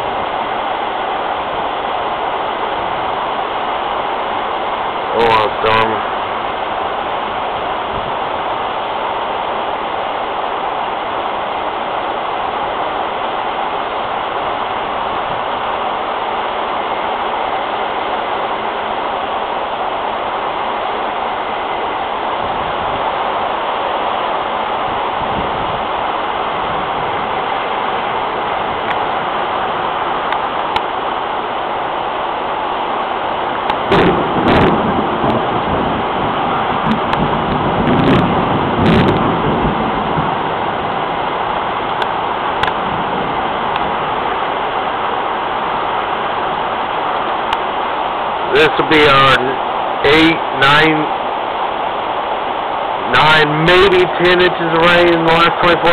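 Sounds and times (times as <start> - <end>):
heavy rain pouring: 0.0 - 55.9
low thunder rumble: 33.8 - 44.4.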